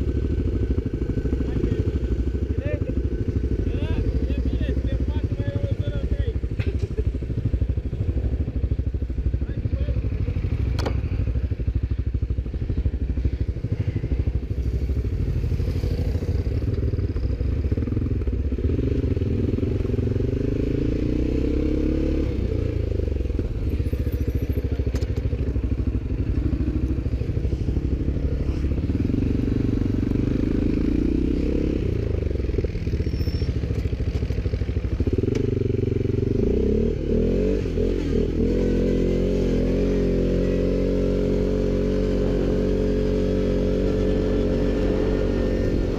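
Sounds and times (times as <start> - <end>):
quad bike engine revving: 13.6 - 45.9.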